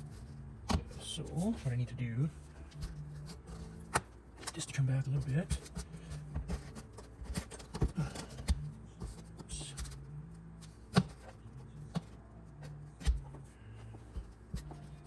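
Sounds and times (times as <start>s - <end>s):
cardboard tapping and knocking: 5.5s - 10.0s.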